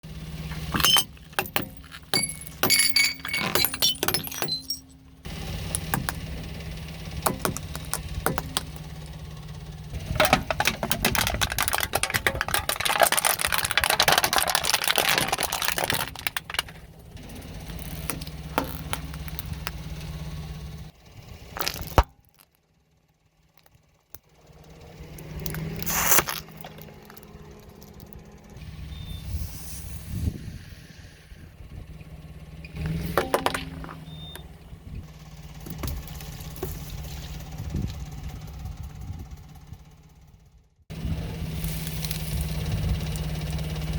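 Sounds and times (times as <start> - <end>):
car engine running: 0.0 - 29.2, 31.6 - 43.9
hard objects clicking and clinking: 0.5 - 4.9, 7.3 - 9.0, 10.0 - 16.8, 33.2 - 34.0
tyre crushing and crunching objects: 0.5 - 5.0, 7.2 - 9.0, 10.0 - 19.8, 21.5 - 22.5, 25.5 - 27.3, 32.8 - 34.4.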